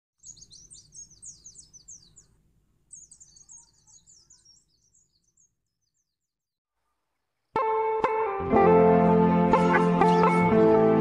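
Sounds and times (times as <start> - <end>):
small bird singing: 0.2 - 7.6.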